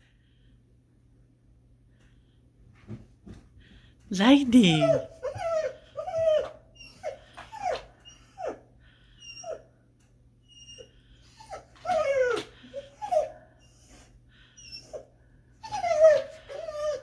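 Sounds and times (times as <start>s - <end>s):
dog whining and whimpering: 4.6s - 9.7s, 10.4s - 17.0s.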